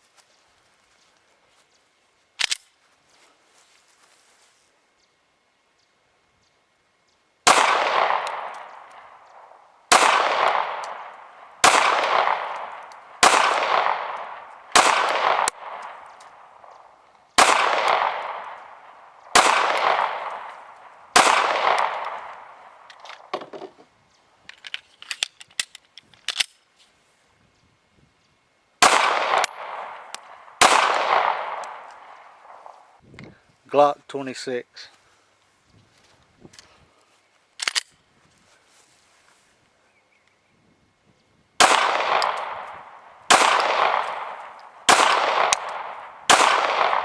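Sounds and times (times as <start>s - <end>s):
pistol shots: 7.4s - 23.4s, 28.8s - 32.9s, 41.6s - 47.0s.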